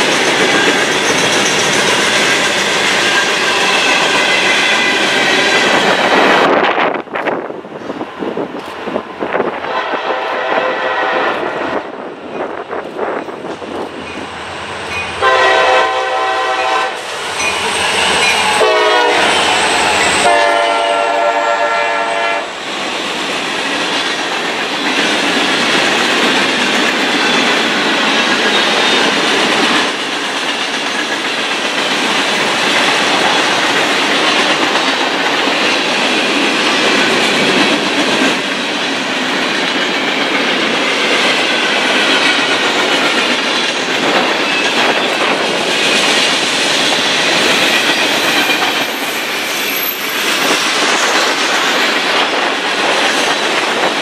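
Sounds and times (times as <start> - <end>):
train wheels clattering on rail joints: 0.0 - 10.5, 22.6 - 54.0
train air horn blasts: 9.6 - 11.9, 15.2 - 17.2, 17.9 - 22.6.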